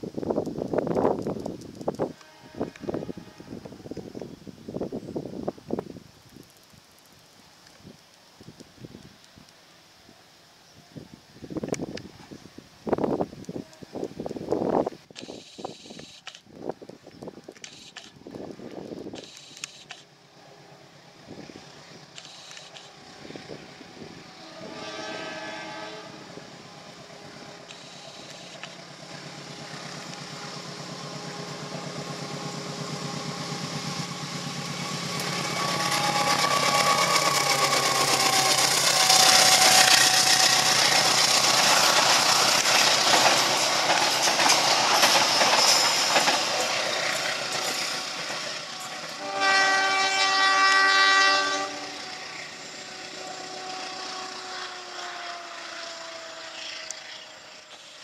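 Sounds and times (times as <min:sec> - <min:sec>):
train horn blast: 0:02.1 - 0:04.0, 0:22.9 - 0:28.2, 0:29.1 - 0:42.2, 0:47.3 - 0:56.8
locomotive engine running: 0:18.6 - 0:58.0
wheels clattering on rails: 0:27.7 - 0:49.2.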